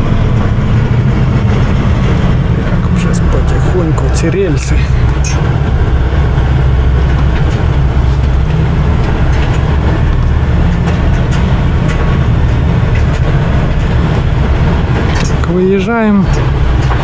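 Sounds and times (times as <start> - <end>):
clicks and rattles over rail tracks: 0.0 - 17.0
truck diesel engine running: 0.0 - 17.0.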